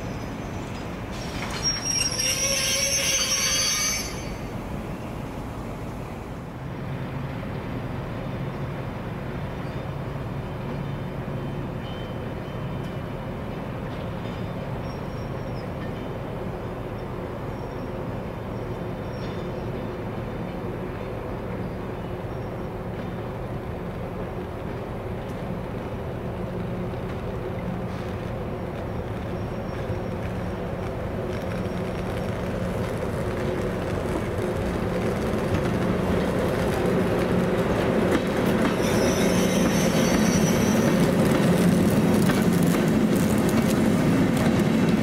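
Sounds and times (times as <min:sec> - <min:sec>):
high-pitched wheel squeal: 0:00.0 - 0:04.5, 0:38.8 - 0:41.1
electric locomotive humming: 0:00.0 - 0:45.0
passenger coaches rolling past: 0:00.0 - 0:45.0.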